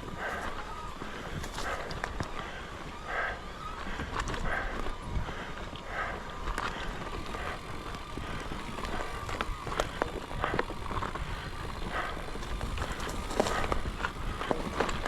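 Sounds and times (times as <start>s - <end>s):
bike frame rattling: 0.0s - 2.9s, 6.5s - 15.0s
bike tyres rumbling on dirt: 0.0s - 15.0s
knocks and clicks over rocks: 6.5s - 15.0s.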